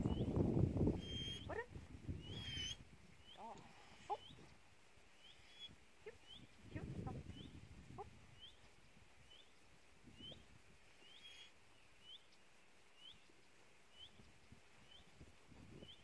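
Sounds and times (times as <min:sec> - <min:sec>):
small bird chirping: 0:02.2 - 0:04.6, 0:05.2 - 0:06.7, 0:08.3 - 0:09.6, 0:11.0 - 0:15.2.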